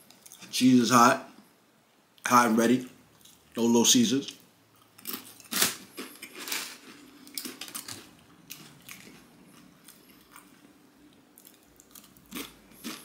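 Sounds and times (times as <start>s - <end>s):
chewing crunchy chips: 4.3s - 13.0s.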